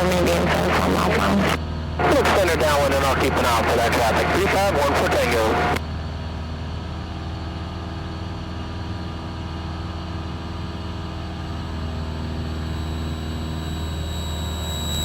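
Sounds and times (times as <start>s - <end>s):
faint high whine: 0.0s - 5.9s, 9.0s - 15.0s
propeller plane engine droning: 0.0s - 15.0s.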